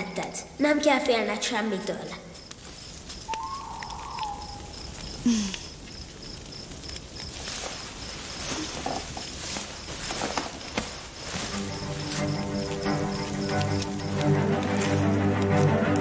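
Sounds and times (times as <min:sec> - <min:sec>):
crickets chirping: 0:00.0 - 0:16.0
soft rustles: 0:04.7 - 0:16.0.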